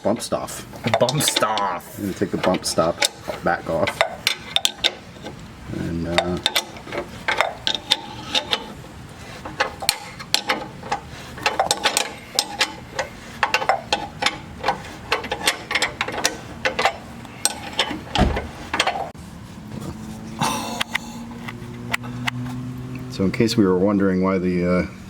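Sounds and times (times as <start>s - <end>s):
dull thump: 18.1s - 18.6s.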